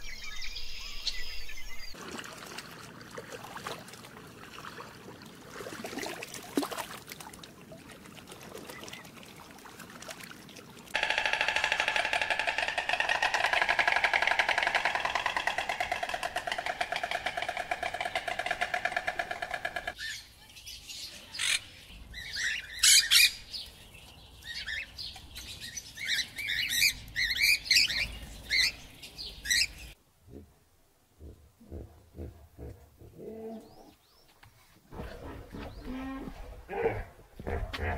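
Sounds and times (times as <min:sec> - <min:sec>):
faint water sloshing: 0:02.0 - 0:11.0
fast-pulsing buzz: 0:11.0 - 0:17.5
birds chirping and squawking: 0:11.0 - 0:23.7, 0:24.4 - 0:30.0.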